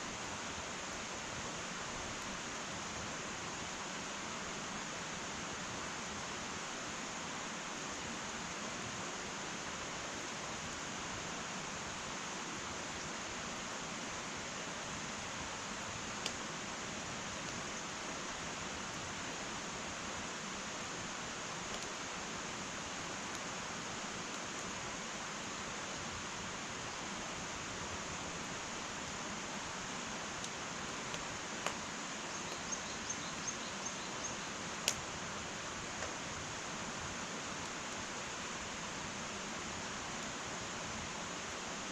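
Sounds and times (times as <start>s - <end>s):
wood fire hissing: 0.0s - 41.9s
fire crackling pops: 16.1s - 16.5s, 21.7s - 22.0s, 30.2s - 33.4s, 34.2s - 36.9s.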